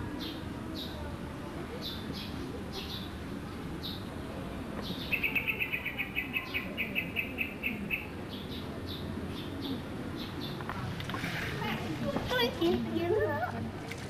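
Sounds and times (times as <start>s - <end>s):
small birds chirping: 1.7s - 10.9s.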